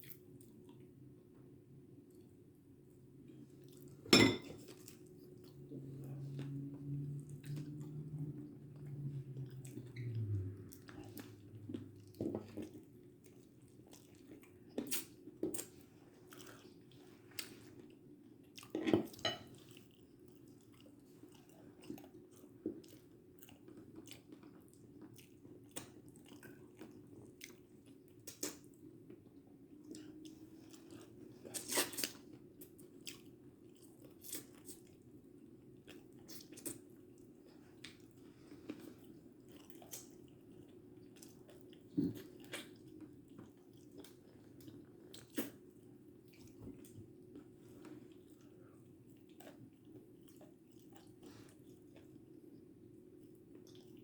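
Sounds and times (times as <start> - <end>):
faint steady hum: 0.0 - 54.0
person chewing crunchy food: 8.8 - 28.7, 35.7 - 52.2.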